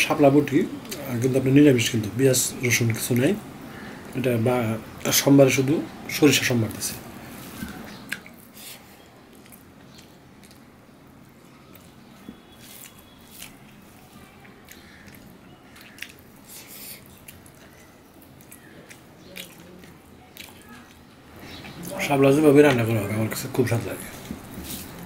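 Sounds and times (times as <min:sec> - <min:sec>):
mouth chewing with wet smacks: 0:07.6 - 0:22.0.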